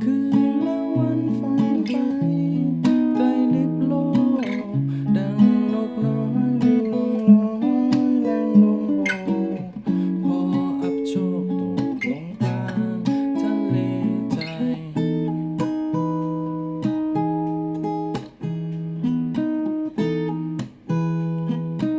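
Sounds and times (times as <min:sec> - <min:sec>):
acoustic guitar strumming and picking: 0:00.0 - 0:21.9.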